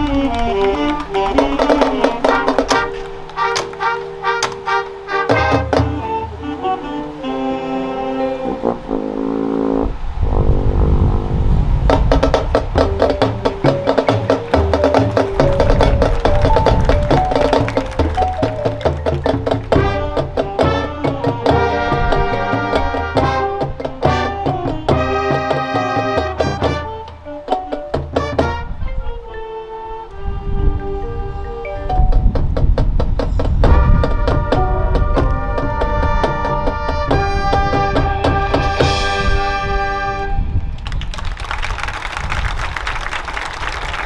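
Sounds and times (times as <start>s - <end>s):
marching band playing: 0.0s - 9.4s, 11.9s - 28.8s, 33.6s - 44.0s
drums and pitched percussion: 11.9s - 22.2s.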